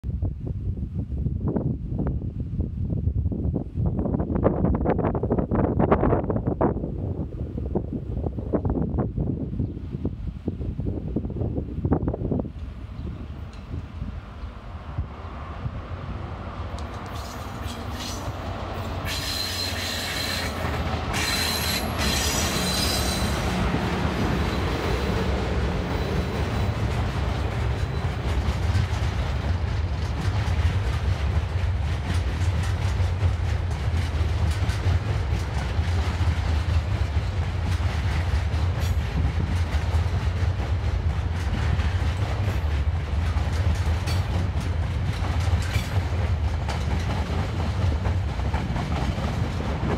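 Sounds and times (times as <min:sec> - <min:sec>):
wheels clacking over rail joints: 0:16.6 - 0:49.9
high wheel squeal: 0:17.0 - 0:23.5.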